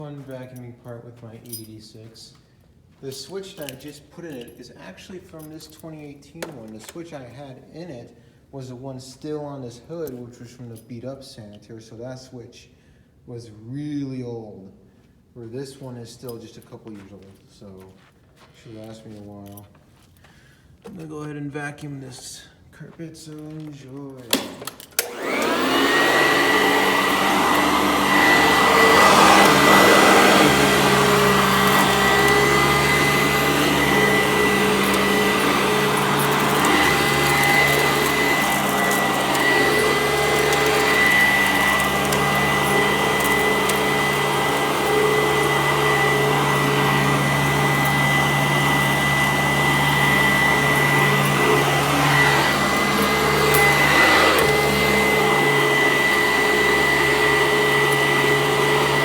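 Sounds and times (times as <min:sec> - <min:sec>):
vacuum cleaner running on carpet: 0:24.3 - 0:59.0.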